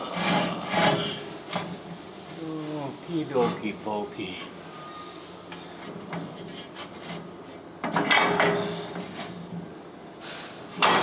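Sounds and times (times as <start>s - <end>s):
tools scraping: 0.0s - 1.8s, 5.5s - 8.2s.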